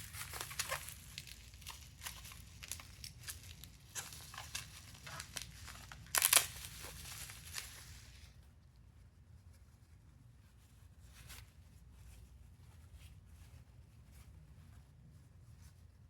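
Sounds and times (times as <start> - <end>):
packing material crinkling and tearing: 0.0 - 8.3.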